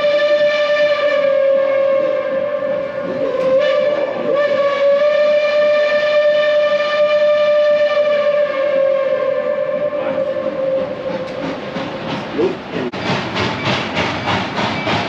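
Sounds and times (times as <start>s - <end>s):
steam whistle blast: 0.0s - 11.2s
steam locomotive chugging: 0.0s - 15.0s.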